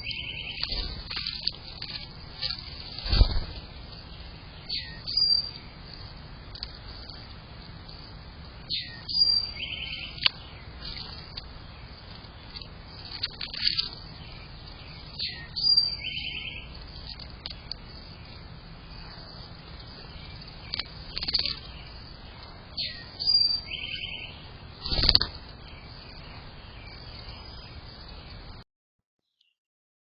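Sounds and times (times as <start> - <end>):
buzzy bird trill: 0.0 - 28.6
low background hiss: 0.0 - 28.6
songbirds chirping and whistling: 0.0 - 28.6.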